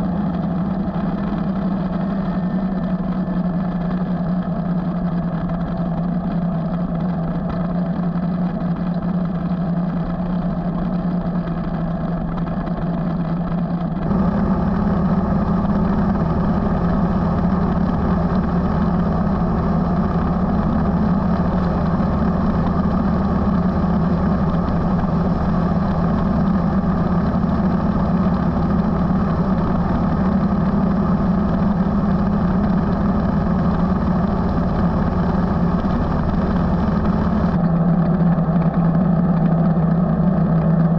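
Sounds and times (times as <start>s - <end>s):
motorcycle engine running: 0.0s - 40.9s
road noise: 10.8s - 40.9s.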